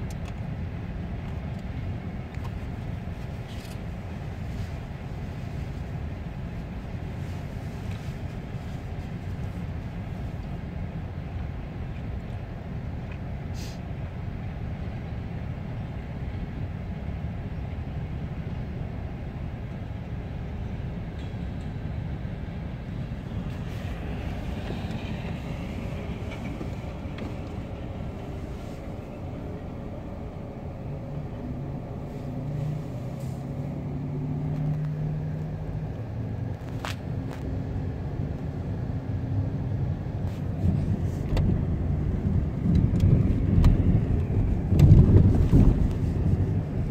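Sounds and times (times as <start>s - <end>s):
car engine hum: 0.0s - 46.9s
road noise: 0.0s - 46.9s
freight train cars rolling past: 20.7s - 30.7s.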